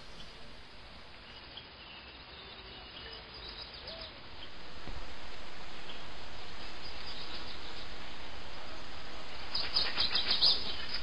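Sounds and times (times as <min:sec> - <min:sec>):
steady background hiss: 0:00.0 - 0:11.0
bird chirps: 0:01.1 - 0:04.6, 0:09.4 - 0:11.0.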